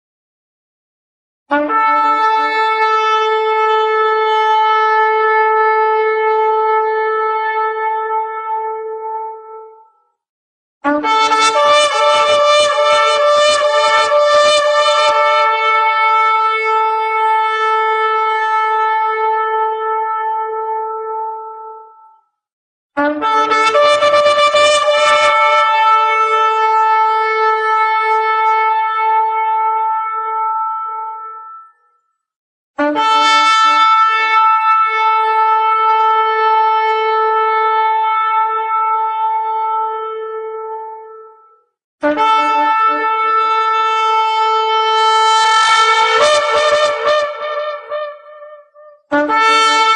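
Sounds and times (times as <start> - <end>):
shofar blasts: 1.5 - 9.7, 10.8 - 21.7, 23.0 - 31.8, 32.8 - 41.4, 42.0 - 49.9.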